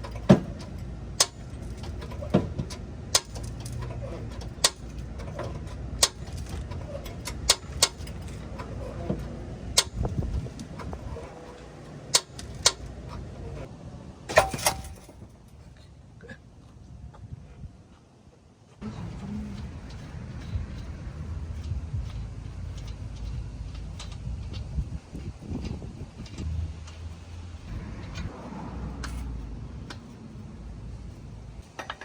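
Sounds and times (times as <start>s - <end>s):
metal clanks: 0.0s - 13.7s, 14.3s - 15.6s, 18.8s - 32.0s.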